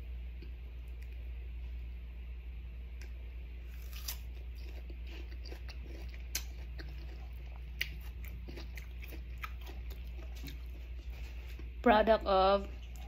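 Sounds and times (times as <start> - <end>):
faint low hum: 0.0 - 13.0
crunchy chewing of mango: 3.6 - 11.8.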